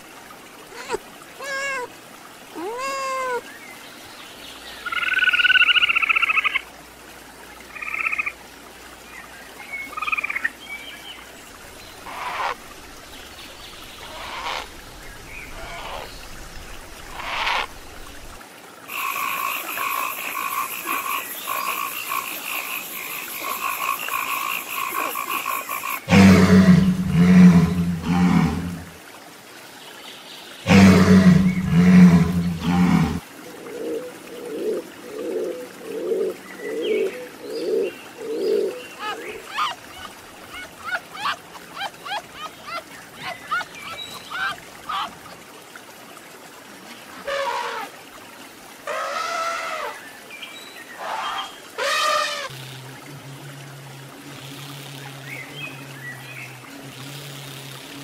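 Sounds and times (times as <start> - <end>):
rapid rhythmic croaking: 18.9 - 28.8
walrus bellowing: 26.1 - 28.9, 30.7 - 33.2
heron calls: 30.7 - 33.2.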